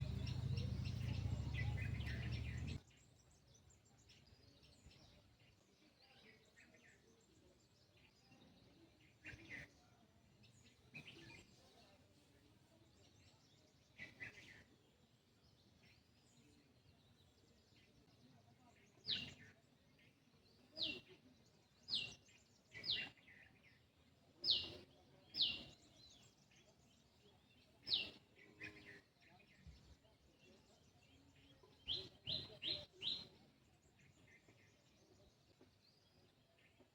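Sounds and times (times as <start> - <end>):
wild birds calling: 0.0 - 2.8.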